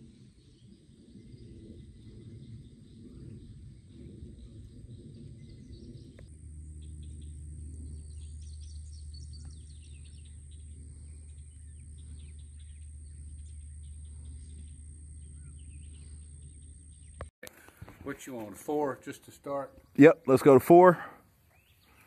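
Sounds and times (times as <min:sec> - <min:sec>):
low background rumble: 0:00.0 - 0:17.3
birds chirping: 0:00.1 - 0:22.0.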